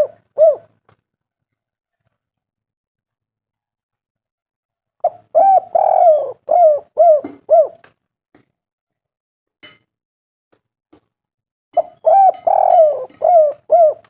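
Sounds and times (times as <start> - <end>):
dove cooing: 0.0 - 0.8, 5.0 - 7.9, 11.8 - 14.0.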